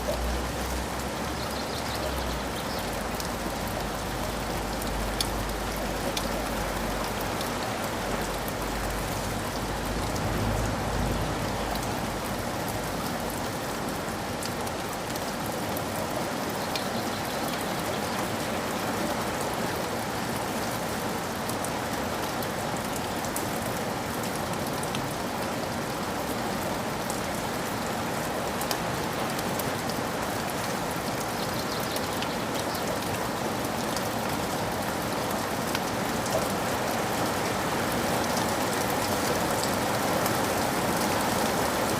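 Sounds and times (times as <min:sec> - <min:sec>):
drips ticking: 0:00.0 - 0:13.4
steady rain falling: 0:00.0 - 0:41.9.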